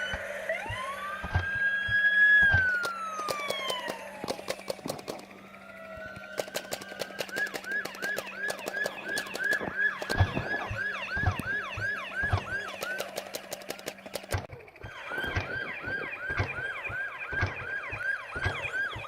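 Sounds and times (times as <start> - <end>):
police siren yelping: 0.0 - 19.0
sharp clicks: 0.1 - 19.0
low thumps: 14.3 - 19.0.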